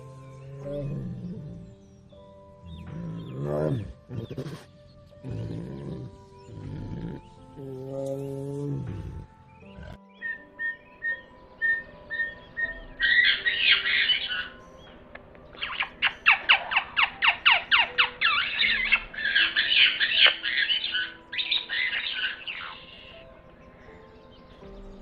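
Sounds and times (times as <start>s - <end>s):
budgerigar chirping and warbling: 10.2s - 14.5s, 15.6s - 23.1s.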